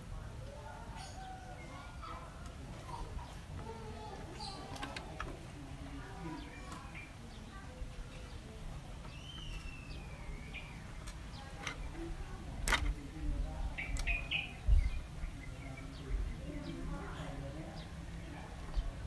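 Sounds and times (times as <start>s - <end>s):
bird chirping: 6.0s - 12.1s, 13.6s - 18.0s.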